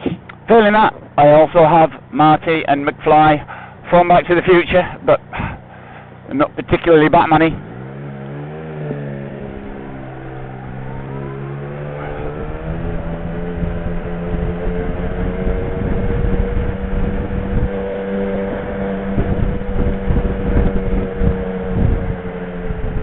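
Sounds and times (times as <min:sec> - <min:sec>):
motorcycle engine: 0:00.0 - 0:23.0
wind rumble on microphone: 0:09.3 - 0:23.0.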